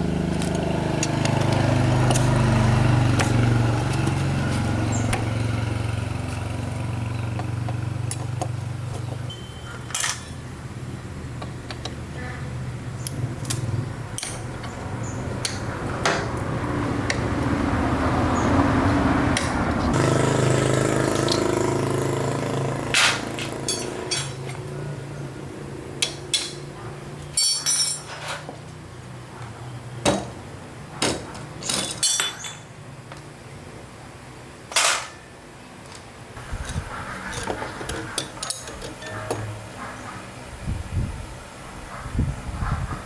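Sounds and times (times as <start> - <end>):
motorbike engine running: 0.0 - 9.4, 16.5 - 26.0, 36.4 - 41.3
metal tools clinking: 9.3 - 10.4, 23.0 - 24.6, 27.4 - 28.5, 31.6 - 32.7.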